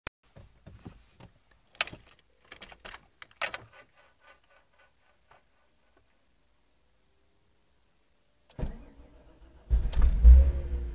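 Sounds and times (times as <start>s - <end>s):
irregular clicks and knocks: 0.3s - 6.1s.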